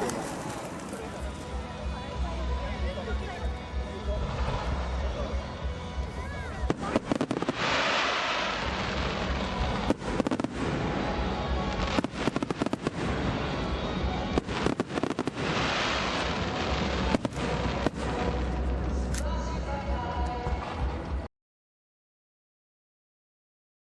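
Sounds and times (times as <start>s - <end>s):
fireworks crackling: 0.0s - 21.2s
fireworks bangs: 6.6s - 19.1s.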